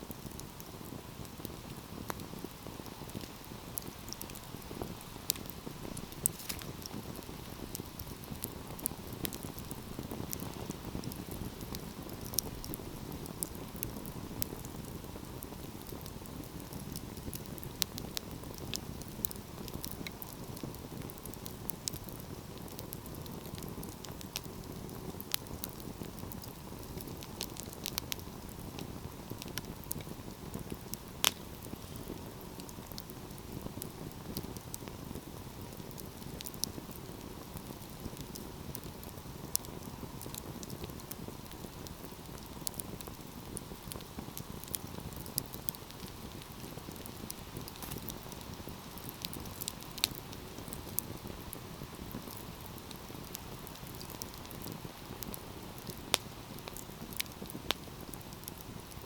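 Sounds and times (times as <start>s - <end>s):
burning logs crackling and popping: 0.0s - 59.0s
flames rushing: 0.1s - 59.0s.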